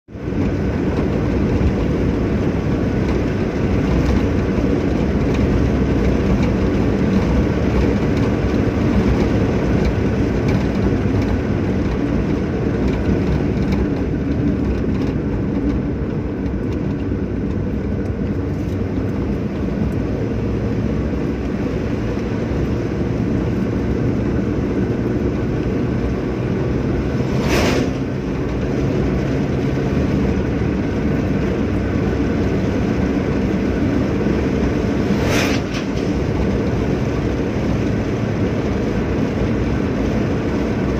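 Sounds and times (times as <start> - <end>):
car engine and road rumble: 0.0 - 40.9
short sharp noise: 27.2 - 28.1, 35.0 - 36.2.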